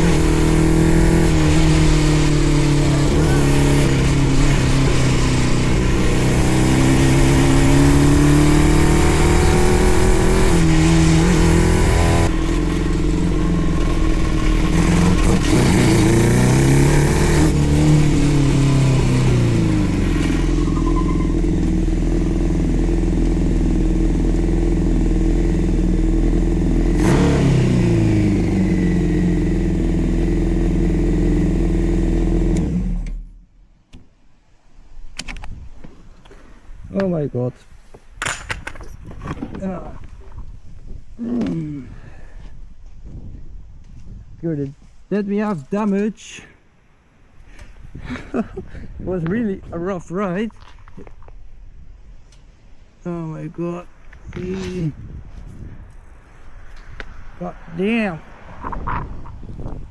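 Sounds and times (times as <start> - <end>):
go-kart engine revving: 0.0 - 33.4.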